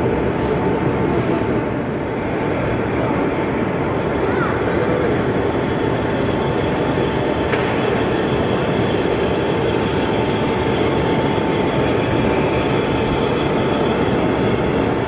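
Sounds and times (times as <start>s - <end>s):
hall background noise: 0.0s - 15.0s
model train running: 0.0s - 15.0s.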